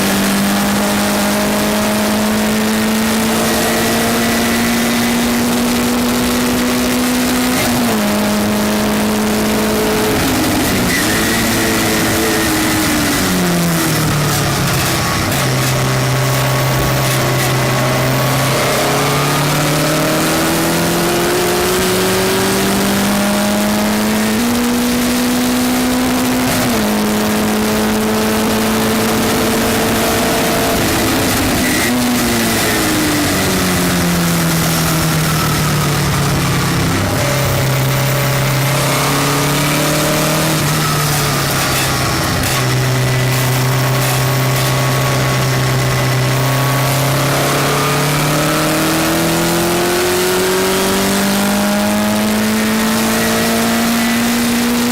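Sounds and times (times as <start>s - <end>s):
race car engine with gear shifts: 0.0s - 54.9s.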